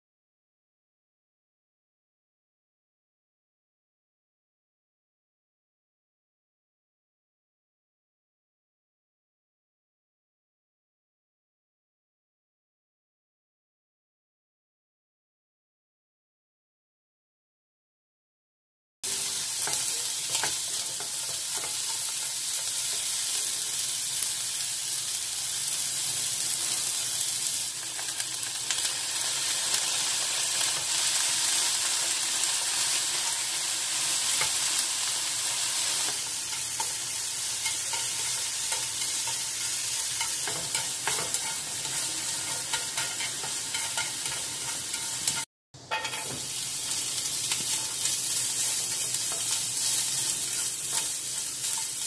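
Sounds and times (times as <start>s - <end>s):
onions sizzling in hot oil: 19.0s - 52.0s
chopsticks scraping and clicking on pan: 19.3s - 24.4s, 35.5s - 52.0s.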